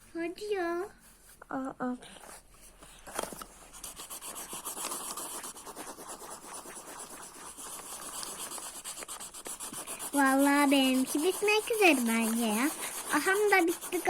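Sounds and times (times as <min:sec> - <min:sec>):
pencil scribbling on paper: 0:03.7 - 0:14.0.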